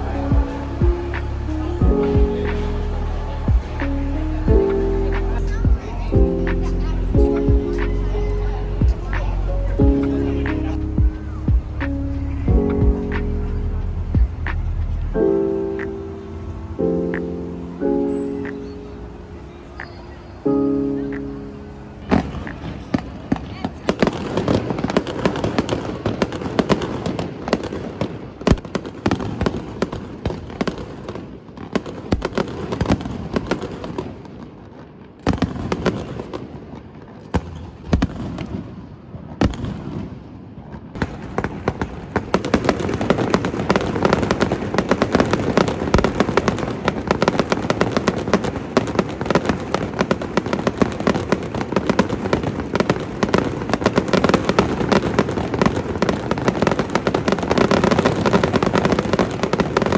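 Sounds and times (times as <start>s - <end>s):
sharp crack: 0.8s - 16.2s.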